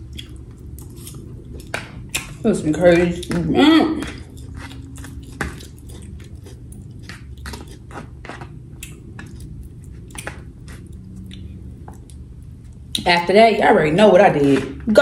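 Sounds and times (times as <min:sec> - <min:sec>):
person chewing with mouth clicks: 0:00.0 - 0:02.4, 0:03.2 - 0:13.0.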